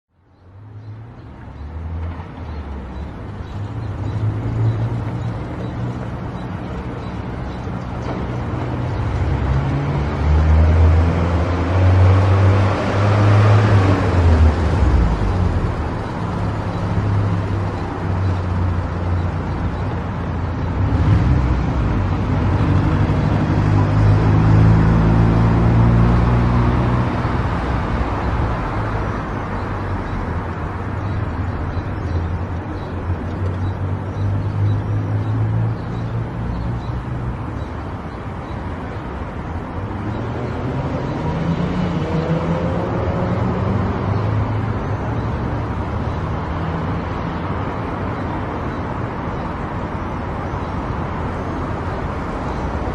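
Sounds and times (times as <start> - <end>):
tyres rushing on road: 0.2 - 52.9
vehicle passing: 1.6 - 52.9.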